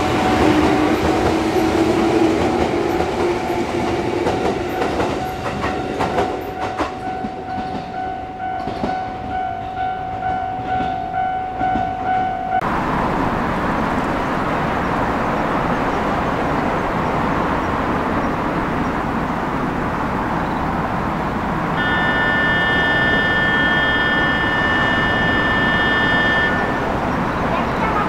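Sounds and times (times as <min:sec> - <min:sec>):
electric train rushing noise: 0:00.0 - 0:28.0
high whining tones: 0:21.8 - 0:27.2.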